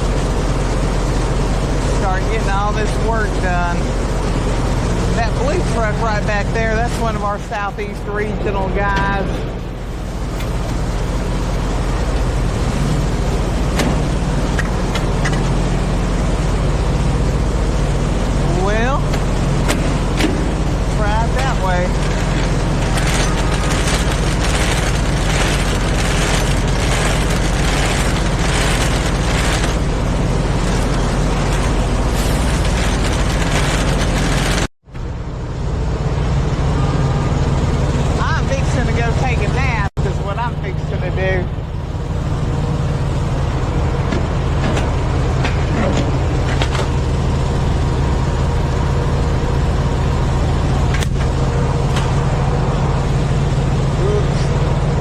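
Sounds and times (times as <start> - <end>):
diesel engine rumble: 0.0 - 55.0
engine hiss: 19.2 - 34.7.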